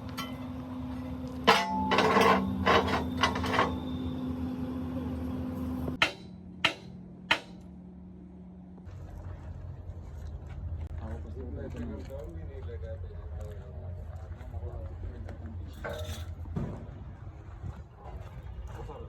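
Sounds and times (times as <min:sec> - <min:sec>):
metal clanks: 0:00.0 - 0:04.2, 0:05.9 - 0:07.6
machine humming: 0:00.0 - 0:06.9
sharp knocks: 0:06.0 - 0:07.6.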